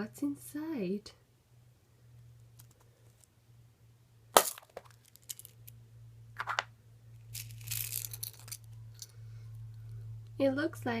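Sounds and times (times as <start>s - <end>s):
plastic egg cracking open: 4.4s - 5.7s, 6.4s - 6.7s.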